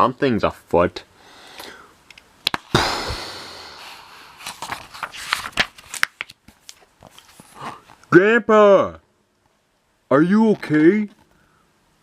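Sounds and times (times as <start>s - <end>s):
explosion-like bang with hiss: 2.7s - 3.6s.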